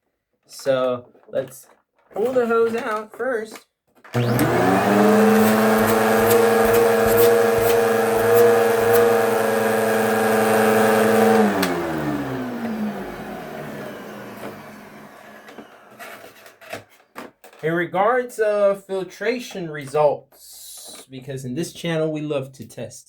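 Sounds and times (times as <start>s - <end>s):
vacuum motor winding down: 4.2s - 16.5s
vacuum cleaner running: 4.2s - 16.6s.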